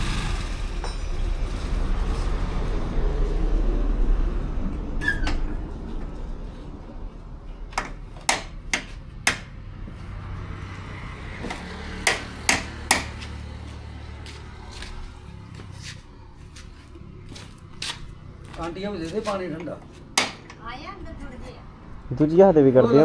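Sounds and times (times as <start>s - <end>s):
low traffic rumble: 0.0s - 23.0s
hand tool knocking on metal: 7.8s - 9.5s, 11.5s - 13.3s, 20.2s - 20.6s.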